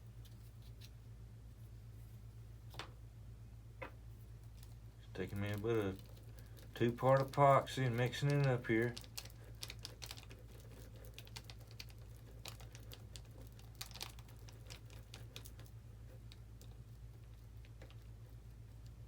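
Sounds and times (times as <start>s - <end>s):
steady low hum: 0.0s - 19.0s
mixing stick scraping and clicking: 4.4s - 19.0s.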